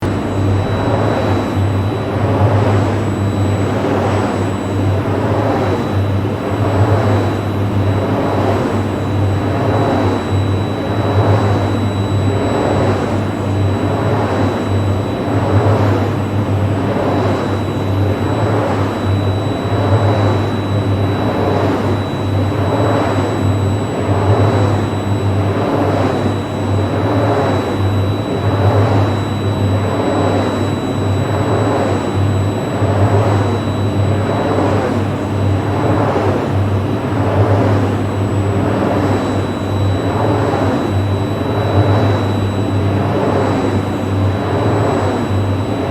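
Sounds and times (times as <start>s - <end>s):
low hum: 0.0s - 34.9s
faint high whine: 0.0s - 45.9s
turbine blades whooshing: 0.0s - 45.9s.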